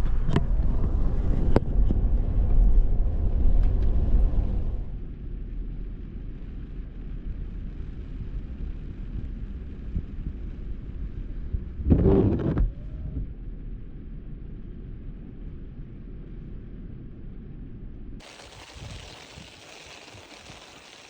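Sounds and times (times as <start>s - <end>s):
wind noise through open window: 0.0s - 21.0s
short noise burst: 18.2s - 21.0s.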